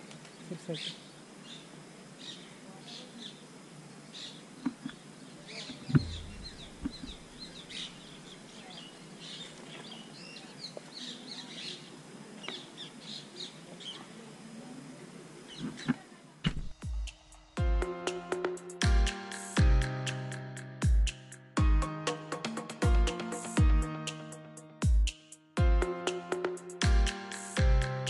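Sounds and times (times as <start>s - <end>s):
small birds chirping: 0.2s - 14.2s, 15.4s - 17.1s
sharp thump: 5.9s - 7.6s, 16.5s - 16.9s.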